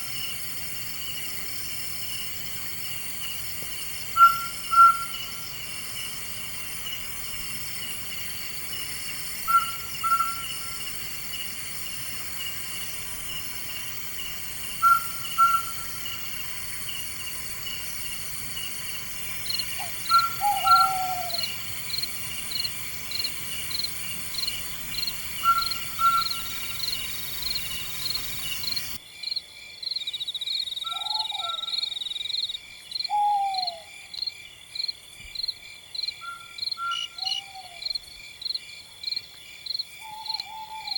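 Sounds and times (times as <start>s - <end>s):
crickets and night insects: 0.0s - 40.9s
lower falling bird call: 19.8s - 21.6s.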